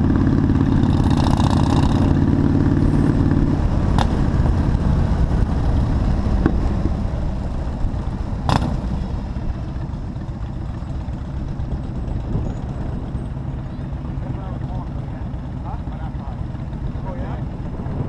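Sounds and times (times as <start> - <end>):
motorcycle engine rumble: 0.0 - 18.0.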